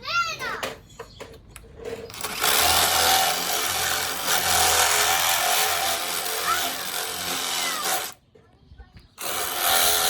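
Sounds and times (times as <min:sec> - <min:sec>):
power drill boring: 0:02.1 - 0:08.2, 0:09.2 - 0:10.0.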